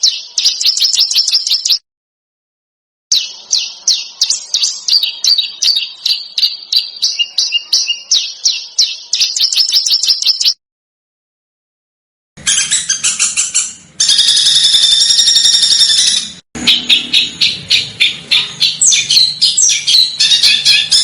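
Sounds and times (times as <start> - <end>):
songbird sharp downward notes: 3.1 - 10.6.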